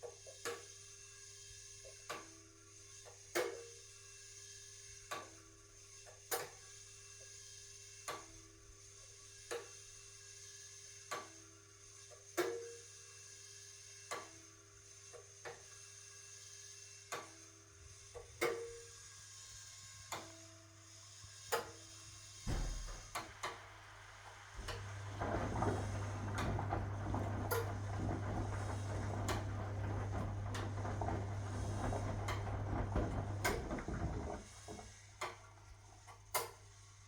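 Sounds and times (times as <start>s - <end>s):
washing machine thump: 22.5s - 23.2s, 24.6s - 34.9s
washing machine clicks and clunks: 22.5s - 23.7s, 24.6s - 36.6s
churning wash water: 22.5s - 36.2s
washing machine motor humming: 22.5s - 36.2s.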